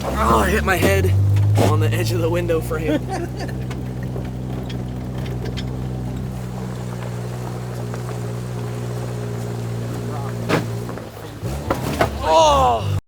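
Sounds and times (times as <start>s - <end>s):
vehicle engine droning: 0.0s - 13.0s
light rattles and ticks: 3.5s - 9.6s.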